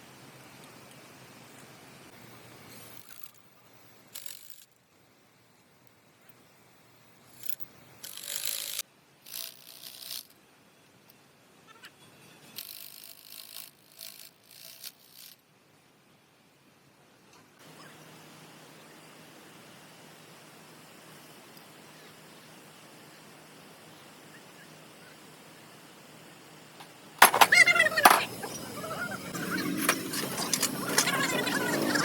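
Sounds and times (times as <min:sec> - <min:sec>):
hand tool clicking and rattling: 0:04.1 - 0:04.7, 0:07.4 - 0:10.3, 0:12.6 - 0:15.4.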